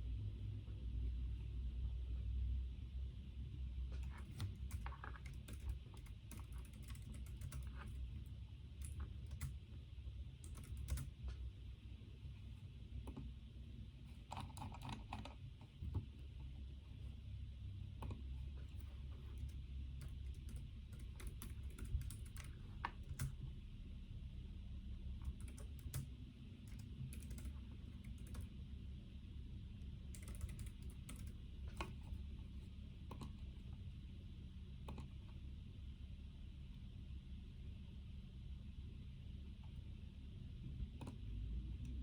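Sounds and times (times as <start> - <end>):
steady low hum: 0.0 - 42.0
typing on computer keyboard: 4.0 - 9.6, 10.4 - 11.2, 14.2 - 16.1, 18.0 - 23.5, 25.2 - 28.6, 30.1 - 32.2, 34.9 - 35.2.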